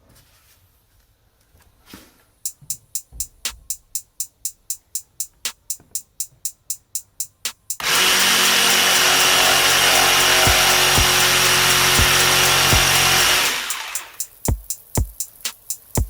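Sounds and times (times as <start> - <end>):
background music drum beat: 2.4 - 16.0
electric power saw cutting: 7.8 - 14.2.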